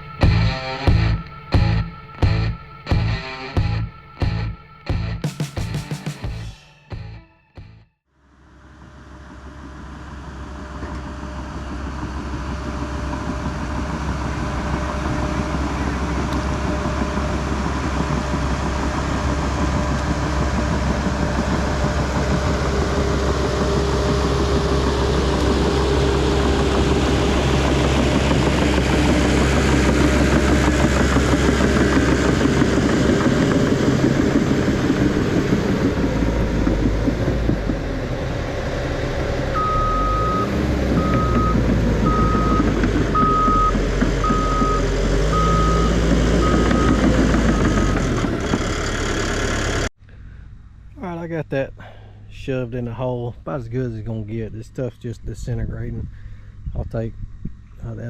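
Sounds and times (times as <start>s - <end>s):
bulldozer diesel engine running: 0.0s - 7.2s, 8.8s - 49.9s
backup alarm beeping: 0.0s - 7.8s, 39.6s - 48.0s.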